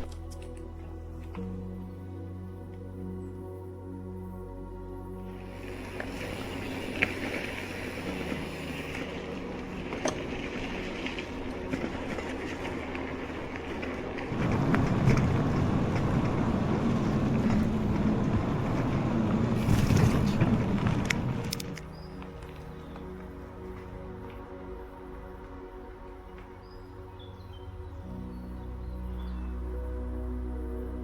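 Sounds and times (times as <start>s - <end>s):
wind rumbling on microphone: 5.2s - 31.0s.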